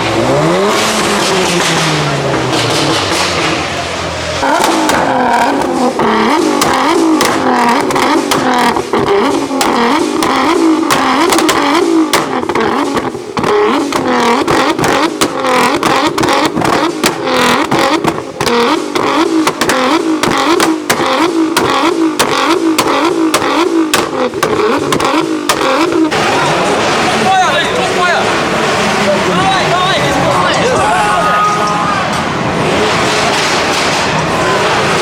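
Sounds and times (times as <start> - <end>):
exhaust pops and bangs: 0.0 - 31.0, 32.1 - 35.0
car engine revving: 0.0 - 35.0.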